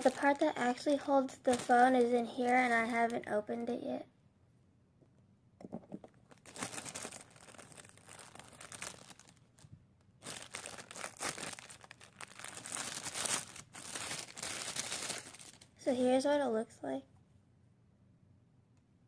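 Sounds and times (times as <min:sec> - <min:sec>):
packaging crinkling and rustling: 0:00.0 - 0:03.2, 0:06.2 - 0:15.7.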